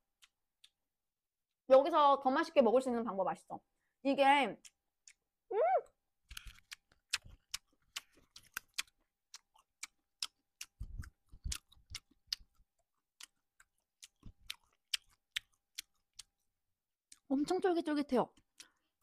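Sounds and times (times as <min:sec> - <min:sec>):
person chewing: 0:00.0 - 0:00.9, 0:04.6 - 0:17.6, 0:18.4 - 0:19.0.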